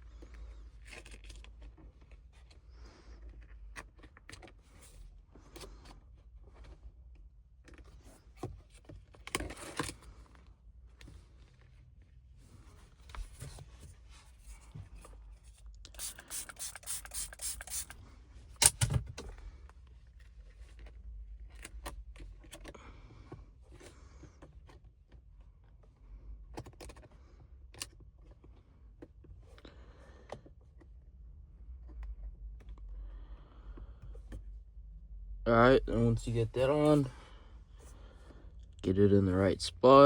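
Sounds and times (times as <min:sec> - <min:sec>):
handling clicks and scrapes: 0:12.5 - 0:19.4
spray bottle squirts: 0:15.9 - 0:18.0.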